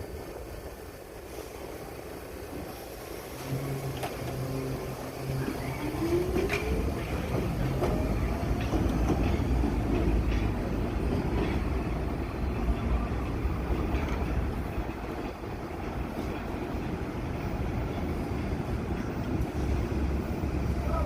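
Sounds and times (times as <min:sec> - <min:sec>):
train rumble: 0:00.0 - 0:21.0
wheels clicking over rail joints: 0:02.4 - 0:21.0
traction motor whine: 0:03.4 - 0:08.0.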